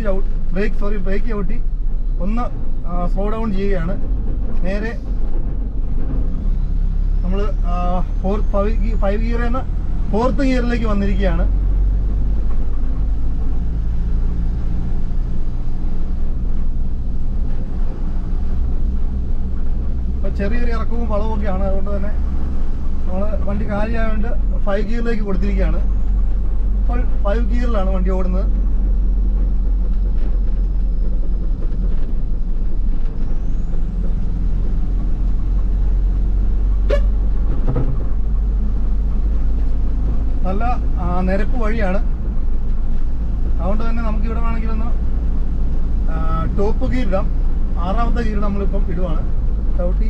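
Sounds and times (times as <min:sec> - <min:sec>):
car engine running: 0:00.0 - 0:50.0
low road rumble: 0:00.0 - 0:50.0.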